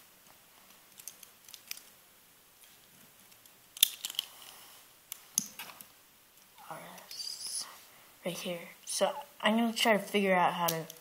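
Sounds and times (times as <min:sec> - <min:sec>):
plastic parts clicking: 0:00.9 - 0:01.9, 0:03.2 - 0:04.3.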